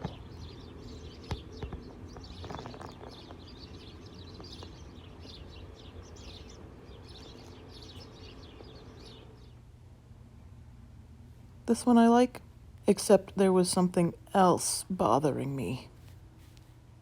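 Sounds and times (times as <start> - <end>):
birds chirping: 0.0 - 9.8.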